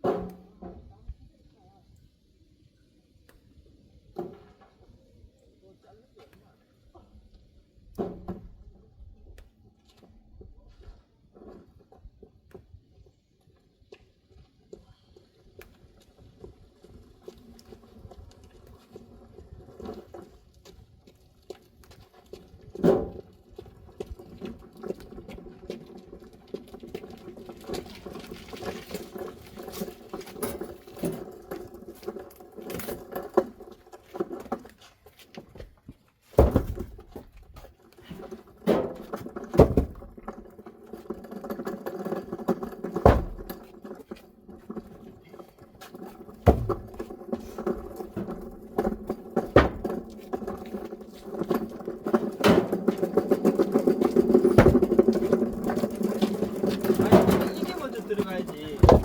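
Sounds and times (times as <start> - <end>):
logs knocking together: 31.8 - 59.0
thuds of wood on wood: 36.3 - 37.3, 38.6 - 40.1, 43.0 - 43.6, 46.4 - 47.5, 48.1 - 50.5, 54.5 - 55.3, 58.8 - 59.0.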